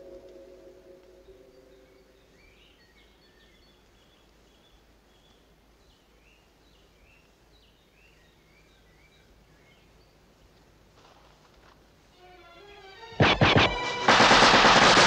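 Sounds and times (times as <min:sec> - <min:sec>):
low music chord: 0:00.0 - 0:02.2
woodland ambience: 0:00.0 - 0:13.0.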